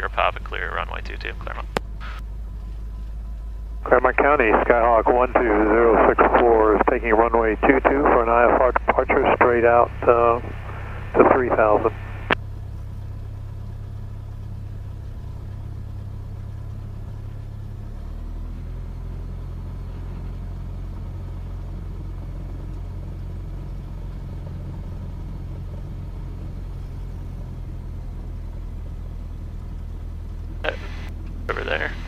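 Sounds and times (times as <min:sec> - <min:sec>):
light aircraft engine humming: 0:00.0 - 0:32.0.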